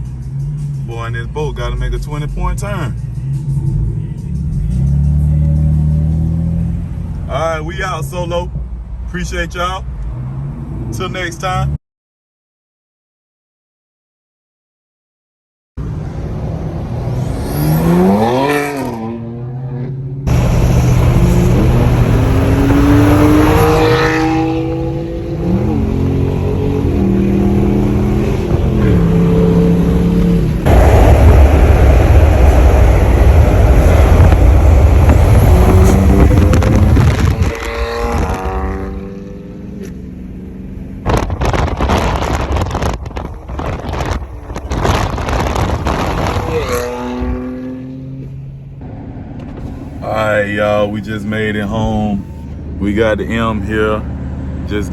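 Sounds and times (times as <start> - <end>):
car engine accelerating hard: 15.8 - 54.9
exhaust cracks: 29.8 - 39.0, 41.0 - 47.6.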